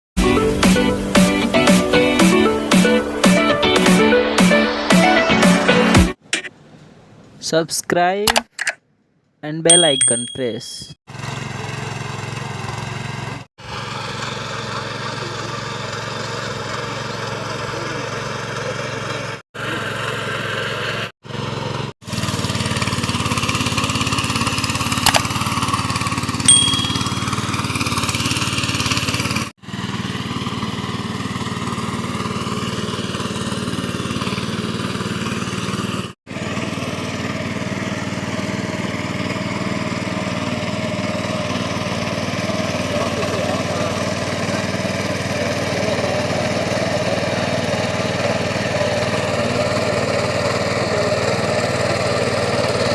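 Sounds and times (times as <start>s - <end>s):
sharp click: 8.3s - 8.8s
mini tractor engine running: 11.1s - 52.9s
short high beep: 26.5s - 27.6s.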